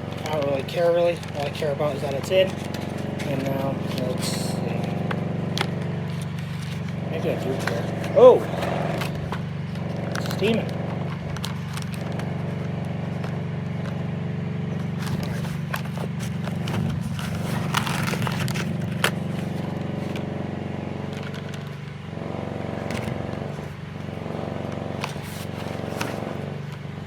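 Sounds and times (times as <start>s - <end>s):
steady motor hum: 0.0s - 27.0s.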